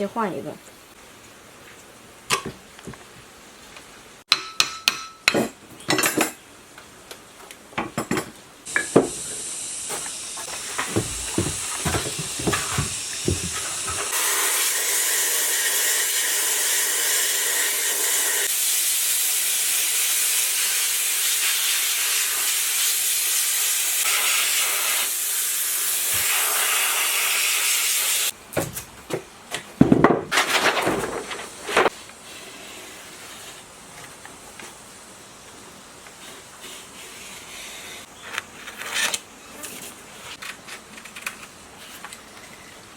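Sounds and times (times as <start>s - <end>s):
loud steady hiss: 8.4s - 28.6s, 30.6s - 38.2s.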